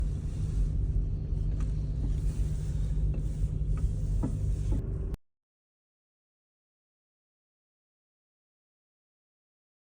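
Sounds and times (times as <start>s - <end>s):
car engine and road rumble: 0.0s - 5.2s.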